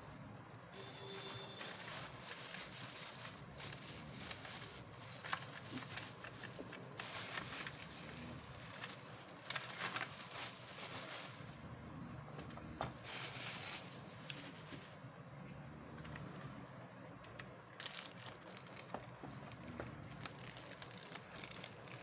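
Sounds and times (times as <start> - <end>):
packaging rustling: 0.7 - 11.7, 13.0 - 15.0, 17.8 - 22.0.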